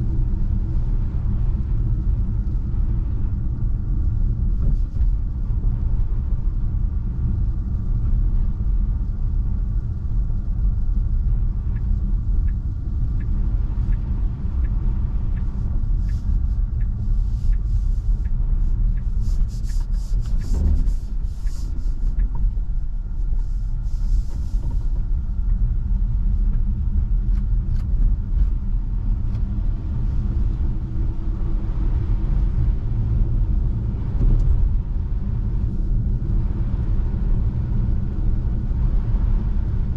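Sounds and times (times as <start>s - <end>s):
tyre and road rumble: 0.0s - 39.9s
faint light ticking: 10.9s - 28.0s.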